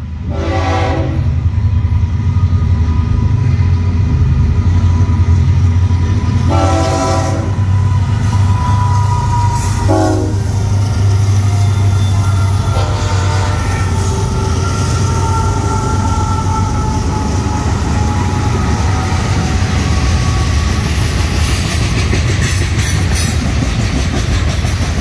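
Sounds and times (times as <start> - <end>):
diesel locomotives rumbling past: 0.0 - 25.0
locomotive air horn blasts: 0.3 - 1.4, 6.4 - 7.8, 8.6 - 10.7, 11.5 - 19.0.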